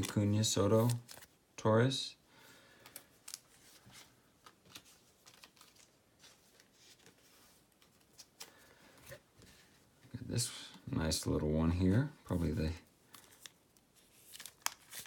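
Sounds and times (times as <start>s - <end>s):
cards being flipped: 0.0s - 1.3s, 2.8s - 8.5s, 13.1s - 15.0s.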